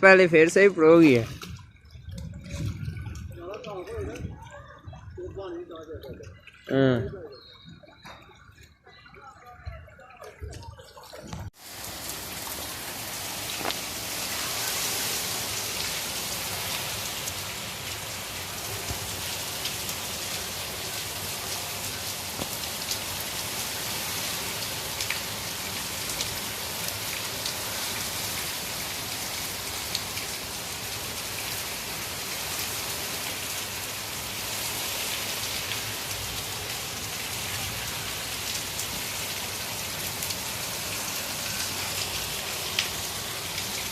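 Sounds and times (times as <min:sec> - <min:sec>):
heavy rain falling: 0:10.1 - 0:43.9.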